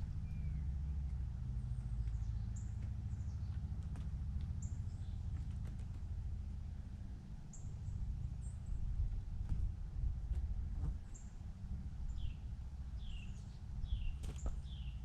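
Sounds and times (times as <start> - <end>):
small birds chirping: 0.1 - 6.5, 7.5 - 9.1, 11.0 - 11.4, 12.0 - 15.0.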